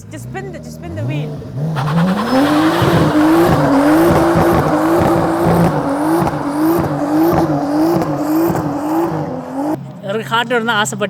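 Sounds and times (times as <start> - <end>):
car engine at high revs: 0.0 - 10.0
tyre squeal: 1.7 - 9.8.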